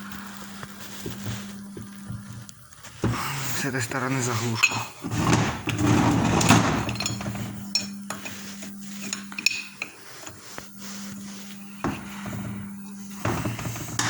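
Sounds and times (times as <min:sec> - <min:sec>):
low hum: 0:00.0 - 0:04.3, 0:05.0 - 0:14.0
metal tools clinking: 0:04.2 - 0:10.4.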